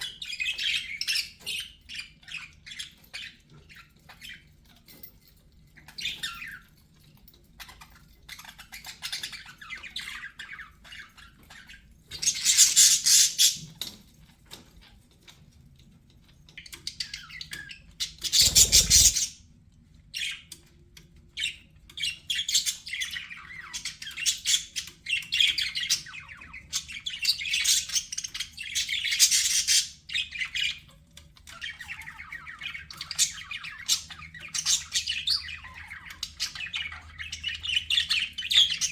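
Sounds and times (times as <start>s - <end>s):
budgerigars chattering: 8.8s - 13.7s, 18.0s - 19.4s.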